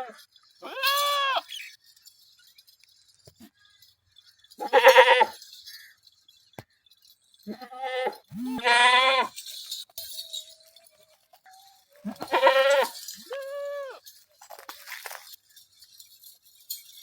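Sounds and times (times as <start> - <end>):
goats bleating: 0.0 - 1.5, 4.6 - 5.4, 7.5 - 9.4, 12.0 - 14.0.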